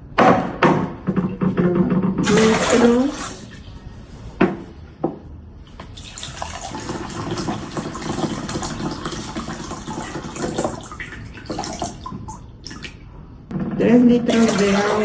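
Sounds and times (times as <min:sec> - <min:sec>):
sharp knocks: 0:00.0 - 0:02.7, 0:04.4 - 0:05.9, 0:13.5 - 0:14.3
water pouring into a container: 0:05.8 - 0:13.0, 0:14.3 - 0:15.0.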